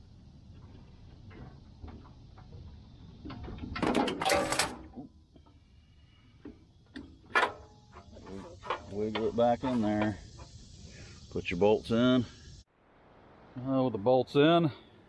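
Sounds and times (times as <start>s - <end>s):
metal parts clattering and scraping: 3.7s - 5.0s.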